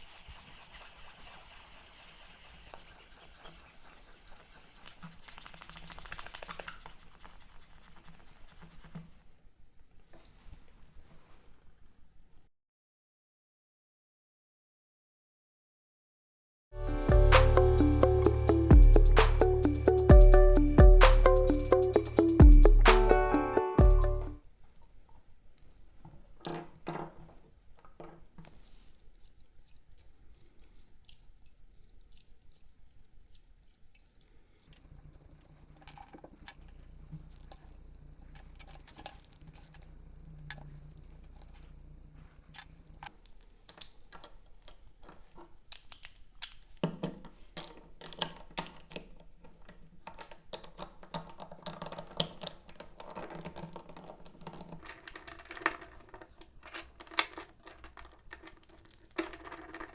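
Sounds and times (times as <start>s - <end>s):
plastic cube pieces clicking: 47.7s - 59.9s.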